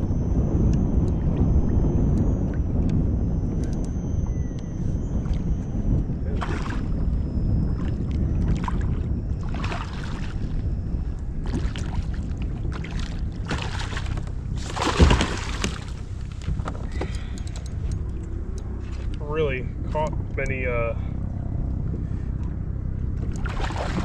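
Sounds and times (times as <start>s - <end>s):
low rumble: 0.0s - 24.0s
water splashing against a kayak: 6.3s - 7.0s, 7.8s - 17.3s, 23.3s - 24.0s.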